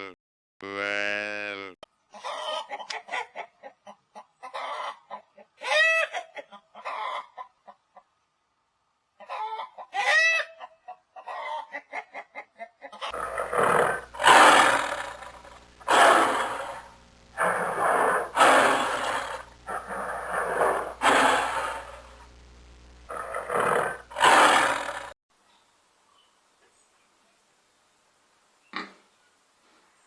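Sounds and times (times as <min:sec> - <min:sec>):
chicken clucking and cackling: 0:02.1 - 0:08.3, 0:09.1 - 0:16.9
breathy rasping animal sound: 0:13.1 - 0:22.3, 0:23.1 - 0:25.2.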